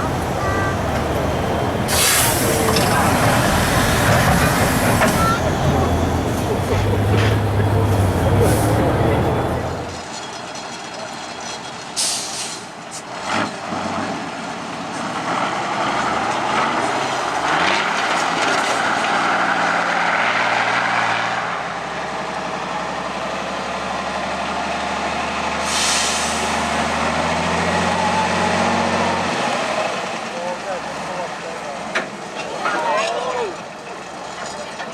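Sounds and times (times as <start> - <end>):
truck engine under load: 0.0 - 34.9
air brake hiss: 1.9 - 2.7, 12.0 - 12.7, 25.6 - 26.6.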